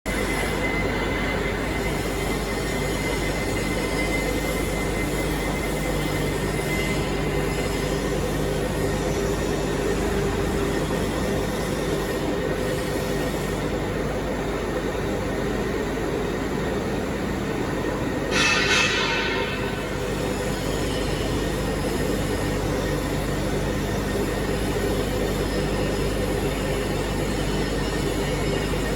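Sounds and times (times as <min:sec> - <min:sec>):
machinery rumble and hiss: 0:00.1 - 0:28.9
steady hum: 0:00.1 - 0:28.9
high whine: 0:15.4 - 0:25.8.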